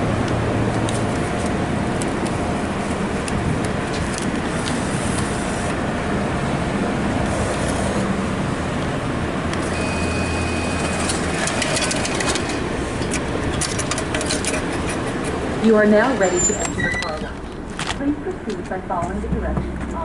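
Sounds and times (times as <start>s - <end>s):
car engine idling: 0.0s - 20.0s
brief high steady tone: 9.6s - 11.2s.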